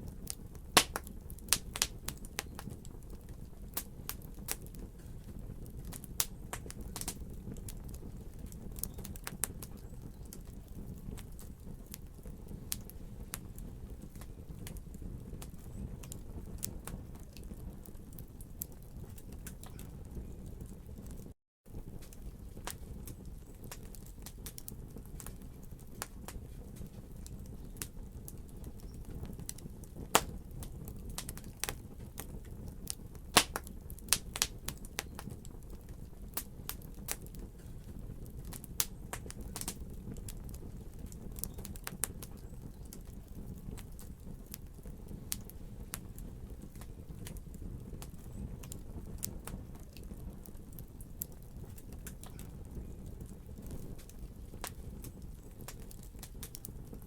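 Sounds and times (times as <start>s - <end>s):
fire crackling and popping: 0.0s - 57.0s
low fire rumble: 0.0s - 57.0s.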